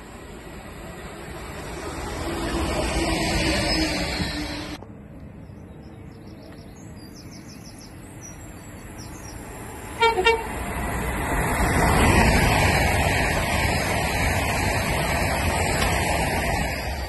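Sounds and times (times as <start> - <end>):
train rushing past: 0.0 - 4.8, 7.8 - 17.0
train horn toots: 10.0 - 10.6.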